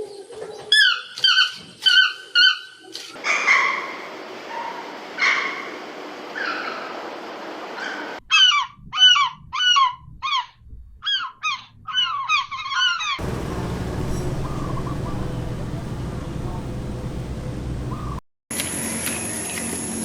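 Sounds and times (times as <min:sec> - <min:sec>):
goose honking: 0:13.2 - 0:18.2
steady low rumble: 0:13.2 - 0:18.2.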